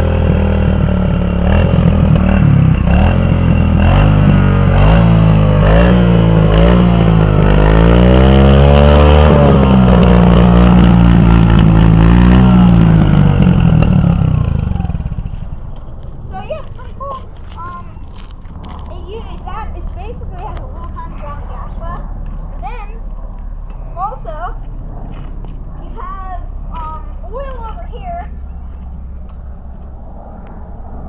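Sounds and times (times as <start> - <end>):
motorcycle engine revving: 0.0 - 16.6.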